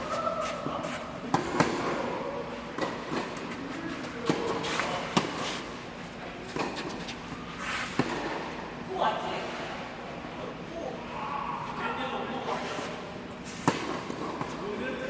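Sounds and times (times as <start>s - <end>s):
rackets striking tennis ball: 1.2s - 2.0s, 13.6s - 14.6s.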